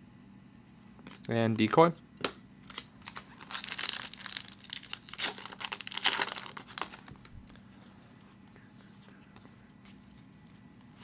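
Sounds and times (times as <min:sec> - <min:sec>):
card pack wrapper tearing and crinkling: 0:02.6 - 0:07.6.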